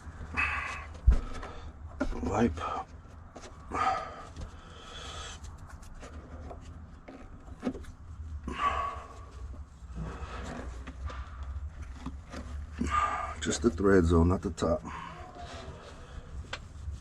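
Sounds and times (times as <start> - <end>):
cloth rubbing strokes: 15.4 - 17.0.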